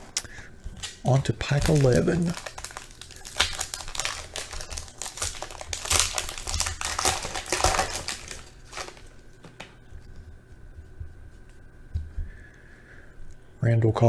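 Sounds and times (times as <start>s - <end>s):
wrapper crinkling and tearing: 0.0s - 9.8s.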